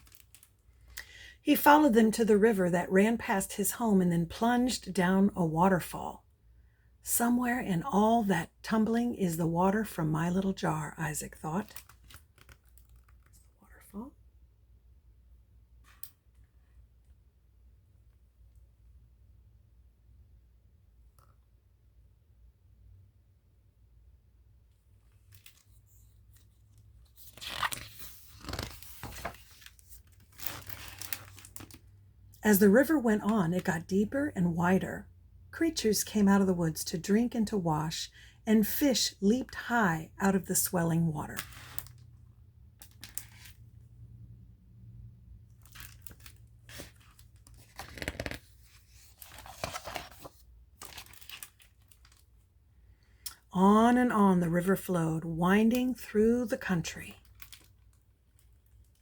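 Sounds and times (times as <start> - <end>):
book pages rustling: 0.0 - 0.9, 11.7 - 13.5, 25.2 - 31.8, 42.8 - 43.7, 45.6 - 52.3.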